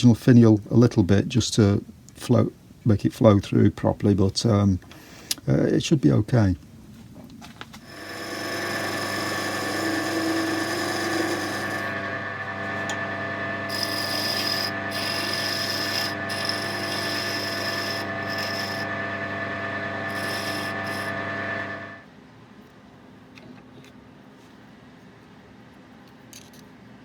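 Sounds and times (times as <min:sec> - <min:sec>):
turning tool cutting wood: 0:07.8 - 0:22.0
wood lathe motor hum: 0:07.8 - 0:22.0.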